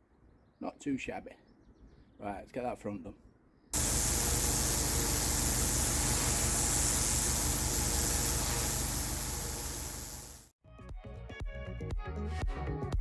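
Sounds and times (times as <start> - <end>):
high-pressure water jet hissing: 3.8 - 10.5
pressure washer engine hum: 3.8 - 10.5.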